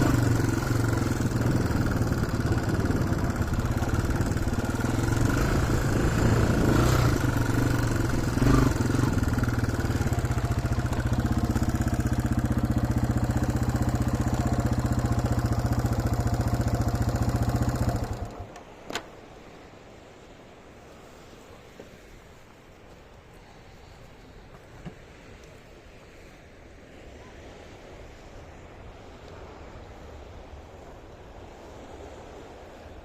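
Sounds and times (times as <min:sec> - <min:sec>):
motorcycle engine idling: 0:00.0 - 0:18.6.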